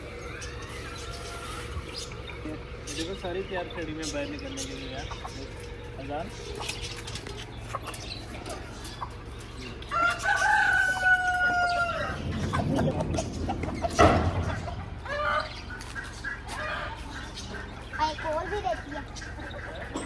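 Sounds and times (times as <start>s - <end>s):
hens clucking: 0.0s - 20.0s
rooster crowing: 9.9s - 12.5s, 14.5s - 15.8s, 16.5s - 17.2s.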